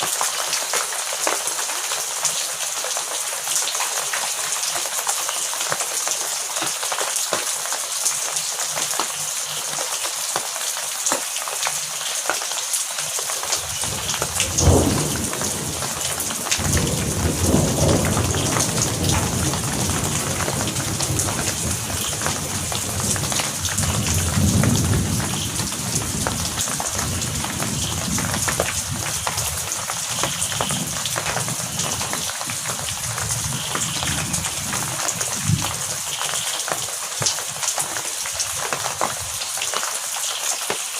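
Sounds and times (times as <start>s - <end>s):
heavy rain falling: 0.0s - 40.9s
thunder rumbling: 13.6s - 36.0s.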